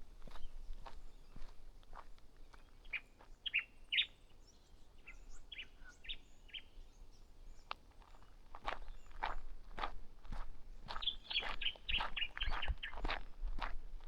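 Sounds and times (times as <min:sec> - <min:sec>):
small birds chirping: 0:00.2 - 0:09.4, 0:10.8 - 0:13.2
footsteps on track: 0:07.7 - 0:14.0.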